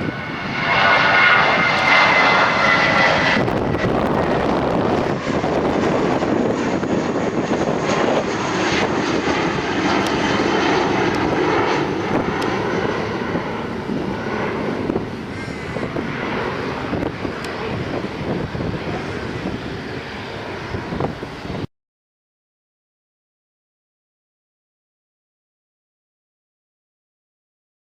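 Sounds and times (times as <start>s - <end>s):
jet engines at takeoff: 0.0s - 21.7s.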